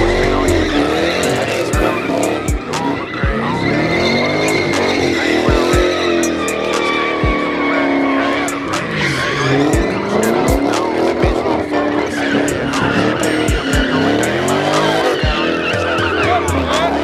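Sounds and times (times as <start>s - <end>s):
car engines revving: 0.0s - 17.0s
hip-hop music with deep bass: 0.0s - 17.0s
tyres squealing: 0.0s - 17.0s.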